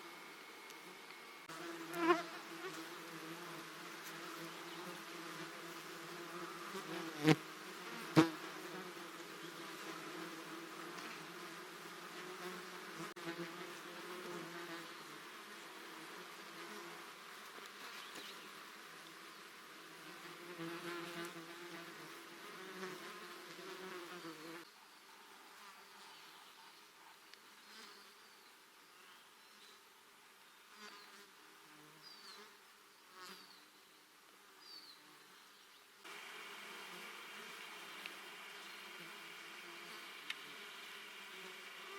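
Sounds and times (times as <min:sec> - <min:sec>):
flying insect buzzing: 0:00.0 - 0:24.7, 0:36.0 - 0:41.9.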